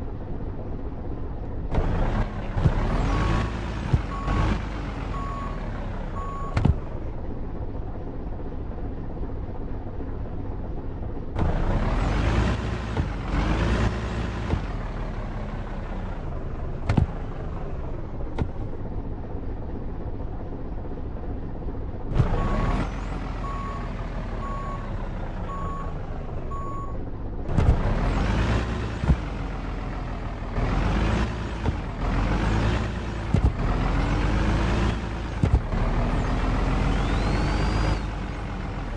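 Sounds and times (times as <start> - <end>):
truck engine revving: 1.7 - 7.0, 11.4 - 18.8, 22.1 - 38.9.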